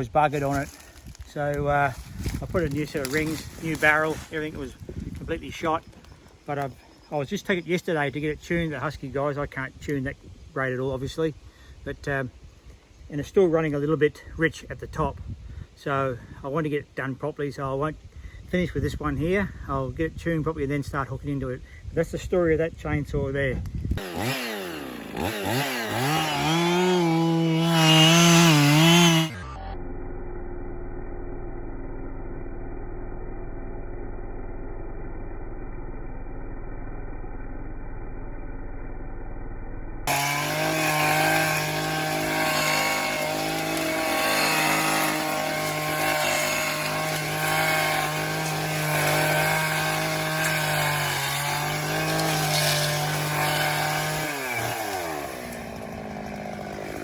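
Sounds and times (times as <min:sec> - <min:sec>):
chainsaw revving: 0:00.3 - 0:04.9, 0:24.0 - 0:29.7, 0:40.1 - 0:57.0.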